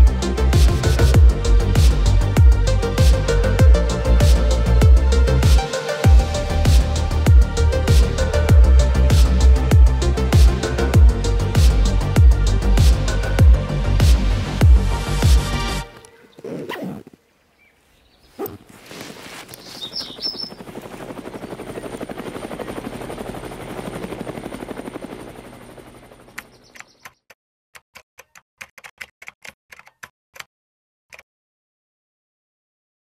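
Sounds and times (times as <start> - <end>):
rapid rattling buzz: 19.6 - 27.0
keystroke clicks: 28.2 - 30.5.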